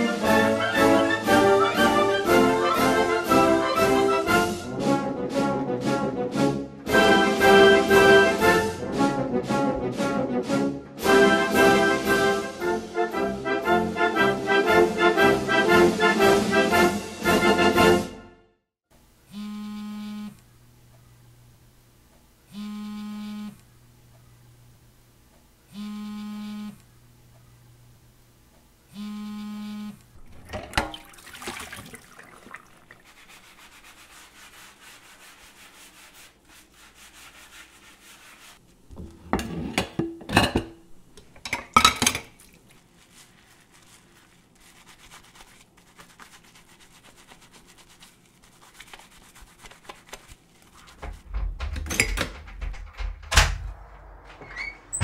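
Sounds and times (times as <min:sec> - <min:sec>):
short electronic buzzer tones: 0:19.3 - 0:20.4, 0:22.5 - 0:23.6, 0:25.7 - 0:26.8, 0:28.9 - 0:30.0
knocks and clattering: 0:51.0 - 0:55.0
low rumble: 0:52.7 - 0:55.0.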